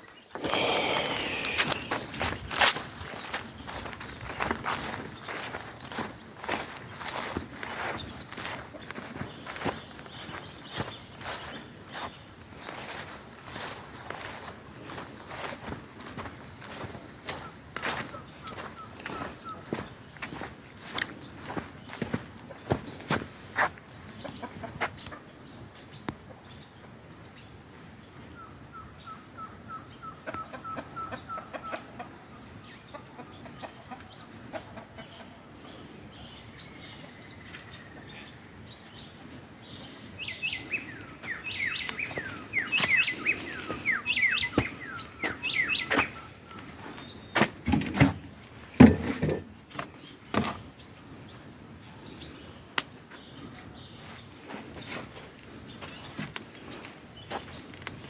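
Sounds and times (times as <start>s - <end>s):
birds chirping: 0.0s - 58.0s
crunching footsteps: 0.1s - 23.9s, 40.5s - 50.6s, 54.0s - 58.0s.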